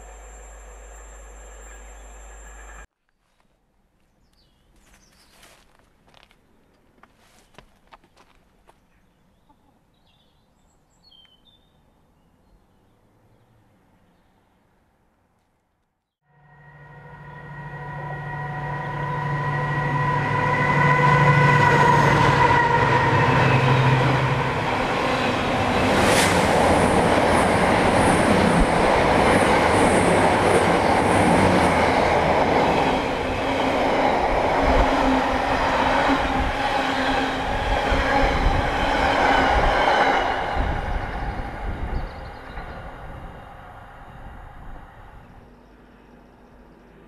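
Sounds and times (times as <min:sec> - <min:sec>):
locomotive engine: 0:00.0 - 0:02.9.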